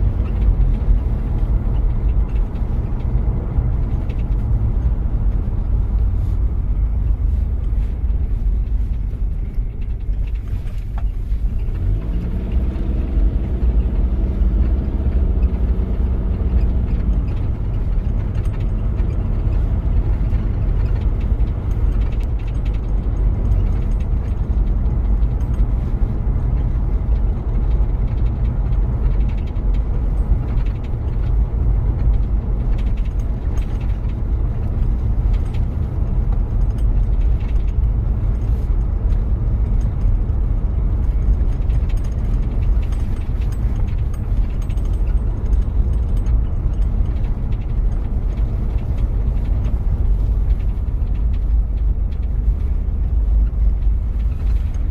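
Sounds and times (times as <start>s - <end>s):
diesel engine rumbling: 0.0s - 54.9s.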